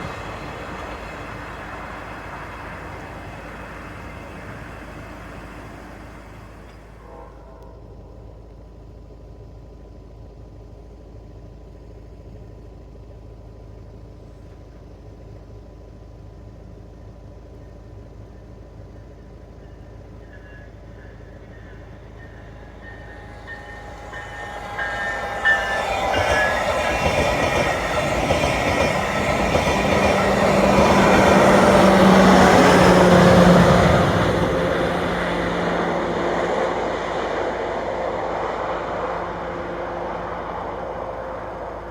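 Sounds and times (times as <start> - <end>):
train passing: 0.0 - 8.4, 17.6 - 41.9.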